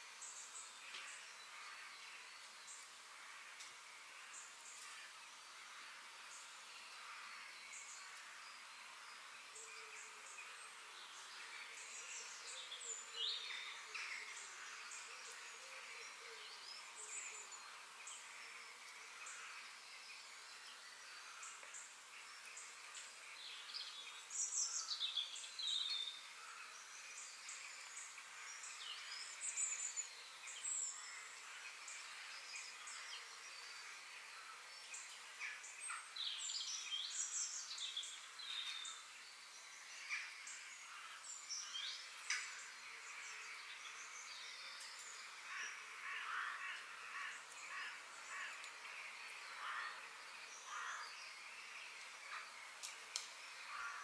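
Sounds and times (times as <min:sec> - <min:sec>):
background hiss: 0:00.0 - 0:54.0
forest birds singing: 0:00.0 - 0:54.0.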